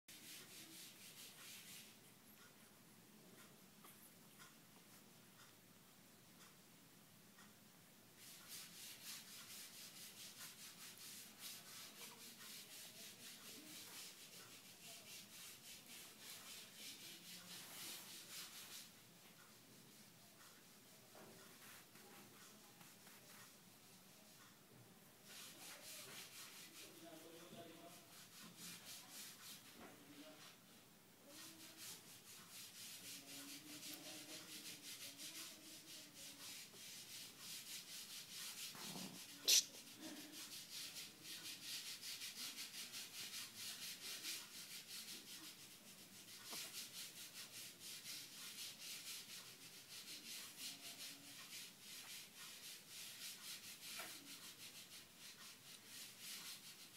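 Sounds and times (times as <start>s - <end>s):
hand rubbing fur: 25.2s - 30.5s, 31.3s - 56.9s.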